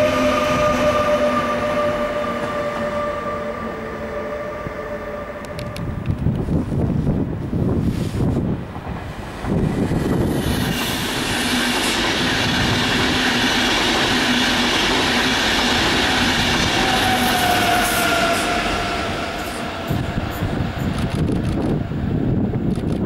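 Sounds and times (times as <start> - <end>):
train wheels rumbling on rails: 5.4 - 23.0.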